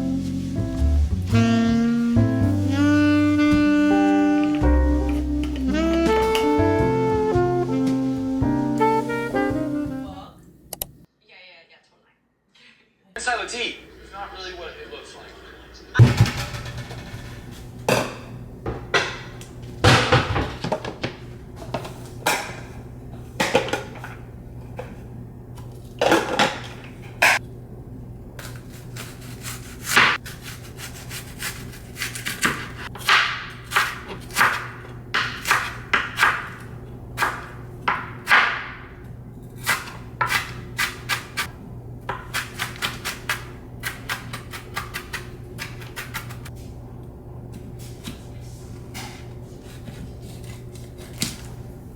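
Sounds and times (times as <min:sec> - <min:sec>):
objects knocking and scraping: 0:16.0 - 0:19.3.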